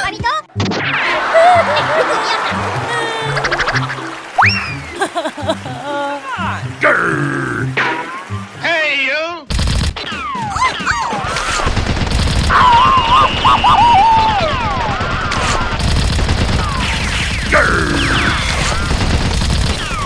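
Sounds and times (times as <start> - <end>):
rapid gunfire bursts: 11.2 - 13.4, 14.4 - 20.0.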